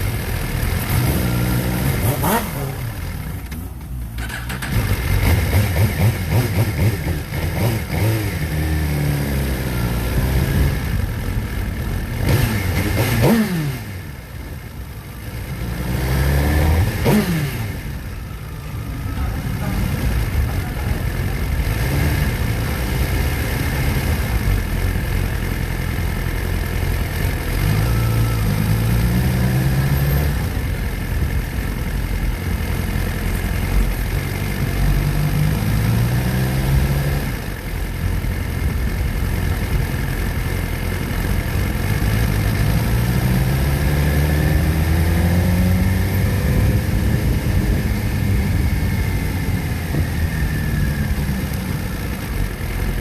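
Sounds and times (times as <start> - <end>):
motorcycle engine accelerating: 0.0 - 53.0
wind noise: 45.8 - 51.0.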